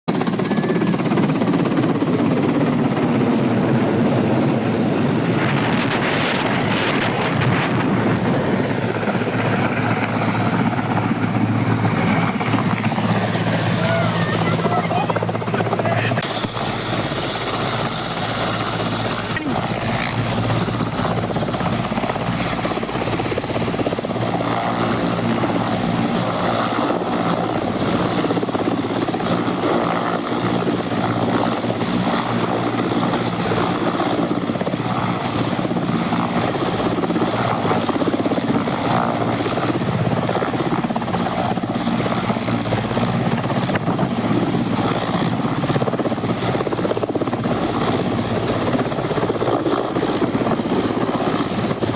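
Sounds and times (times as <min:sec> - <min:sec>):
helicopter rotor and engine: 0:00.1 - 0:51.9.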